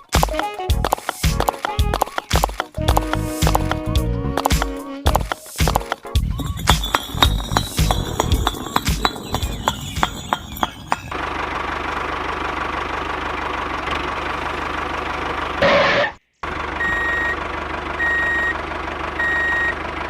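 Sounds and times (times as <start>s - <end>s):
electronic reversing beeper: 6.3s - 11.2s, 16.8s - 17.4s.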